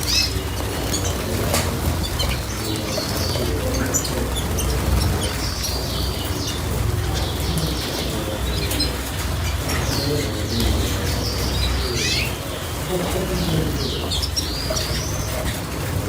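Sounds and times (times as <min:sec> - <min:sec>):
cage birds chirping: 0:00.0 - 0:16.0.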